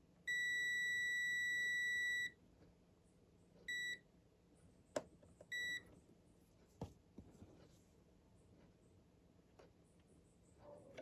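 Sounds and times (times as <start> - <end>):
multimeter continuity beeps: 0.3 - 2.4, 3.7 - 4.0, 5.5 - 5.9.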